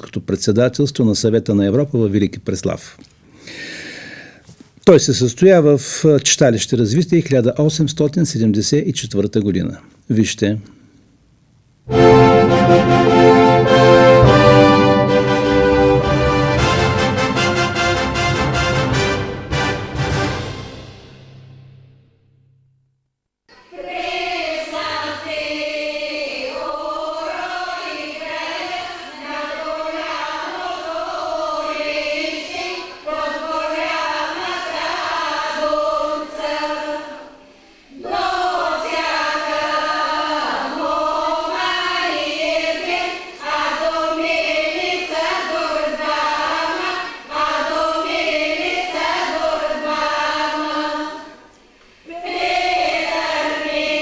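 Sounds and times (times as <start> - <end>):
group of voices singing: 11.9 - 19.8, 23.5 - 54.0.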